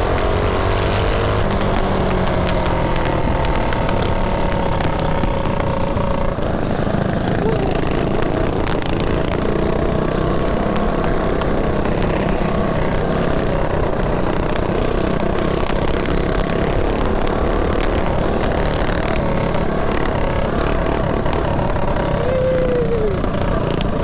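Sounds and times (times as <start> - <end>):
mini bike engine running: 0.0 - 24.0.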